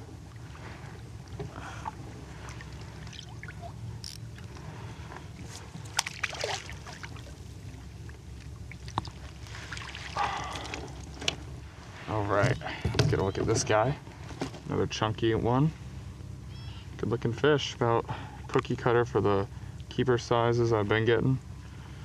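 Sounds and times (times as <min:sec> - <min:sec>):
water sloshing against kayak: 0:00.0 - 0:14.7
steady low rumble: 0:00.0 - 0:22.0.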